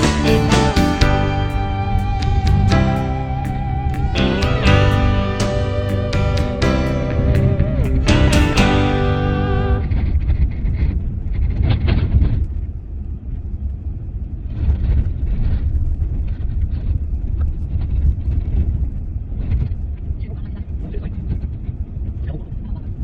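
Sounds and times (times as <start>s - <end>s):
guitar music: 0.0s - 10.0s.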